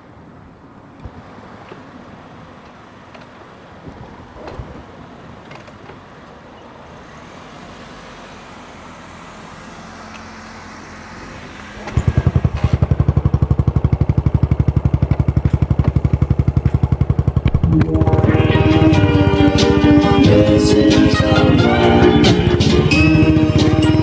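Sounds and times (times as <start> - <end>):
motorcycle engine idling: 10.7 - 24.0.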